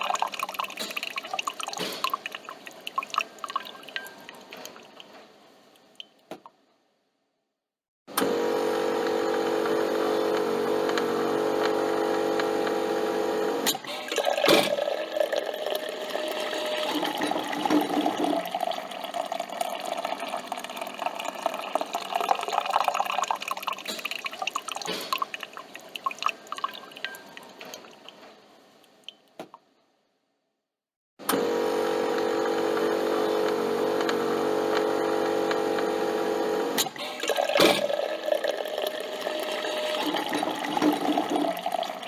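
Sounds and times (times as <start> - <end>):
coffee dripping into cup: 0.0 - 5.1, 14.1 - 28.2
coffee machine motor humming: 8.2 - 22.4, 31.3 - 42.0.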